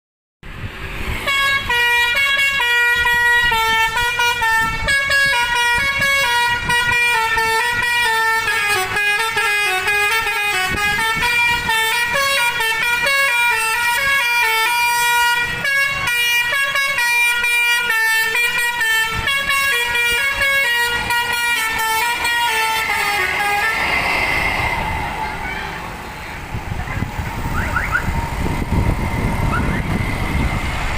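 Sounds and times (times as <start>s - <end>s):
multi-tone bus horn melody: 1.2s - 26.4s.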